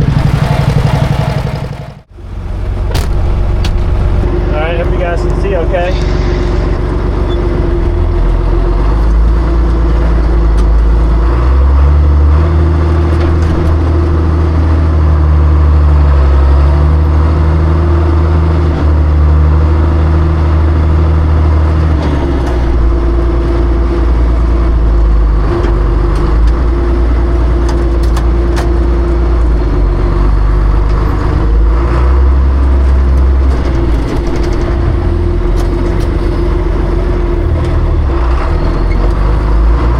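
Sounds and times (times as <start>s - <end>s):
high whine: 0.0s - 11.1s
tractor engine running: 0.0s - 39.9s.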